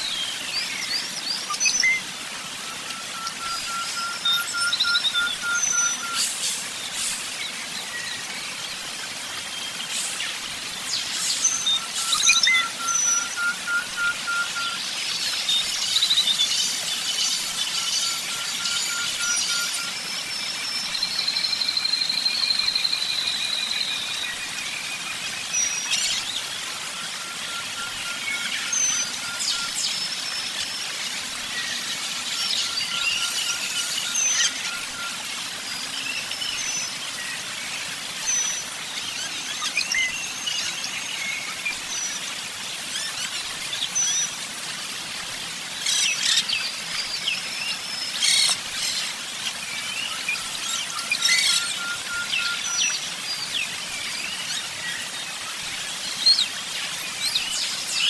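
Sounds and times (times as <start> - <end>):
songbirds singing and calling: 0.0 - 58.0
steady hiss: 5.5 - 7.8, 9.7 - 13.8.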